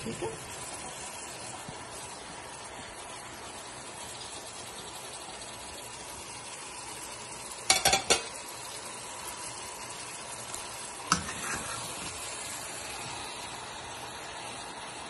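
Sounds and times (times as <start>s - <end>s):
food sizzling in a pot: 0.0s - 15.0s
spatula knocking against pot: 7.7s - 8.3s
spatula stirring and scraping: 10.6s - 13.2s.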